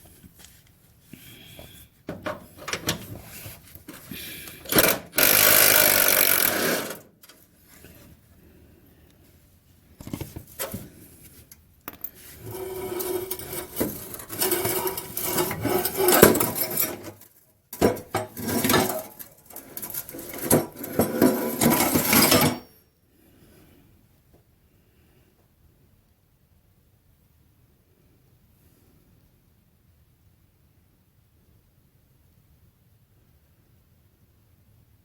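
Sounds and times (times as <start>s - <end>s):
impact wrench hammering: 4.7s - 7.0s.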